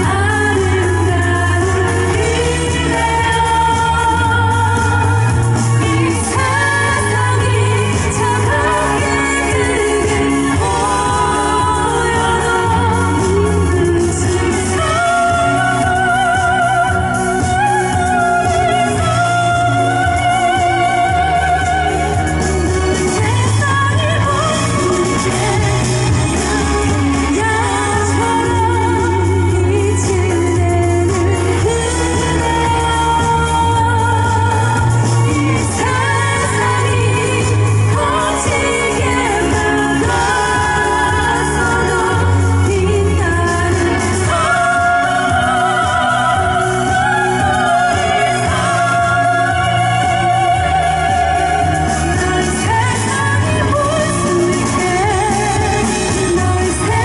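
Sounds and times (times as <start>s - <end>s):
held bass notes: 0.0s - 57.0s
pop backing track: 0.0s - 57.0s
singers with amplified accompaniment: 0.0s - 57.0s.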